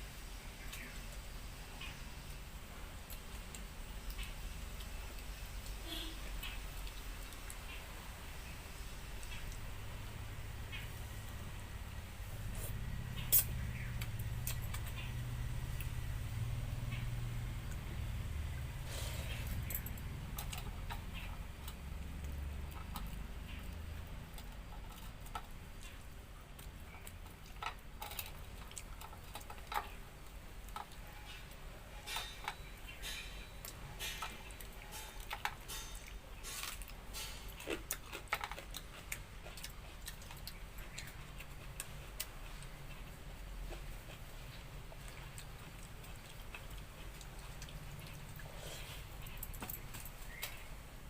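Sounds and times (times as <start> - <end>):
low background hum: 0.0 - 51.0
chewing smacks: 36.4 - 50.7.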